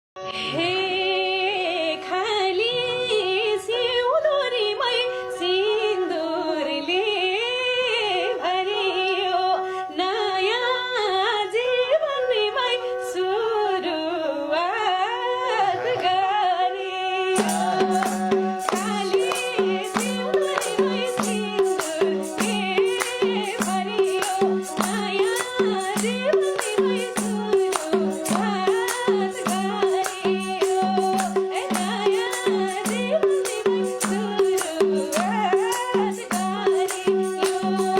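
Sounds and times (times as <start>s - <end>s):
woman singing: 0.2s - 37.9s
percussion beat: 17.4s - 37.9s.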